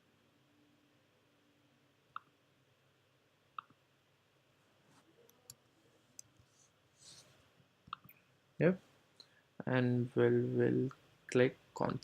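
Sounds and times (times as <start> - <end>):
computer mouse clicks: 2.1 - 2.3.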